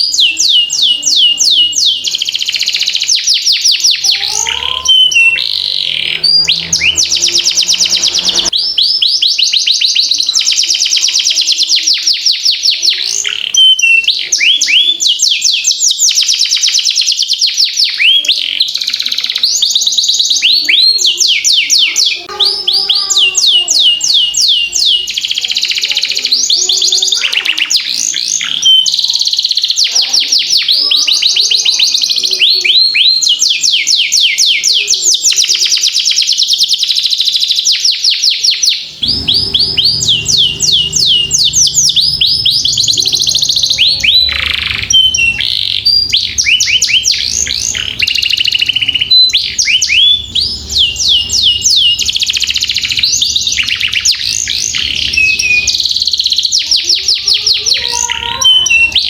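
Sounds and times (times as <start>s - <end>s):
canary singing trills: 0.0s - 59.0s
low steady hum: 38.9s - 55.8s.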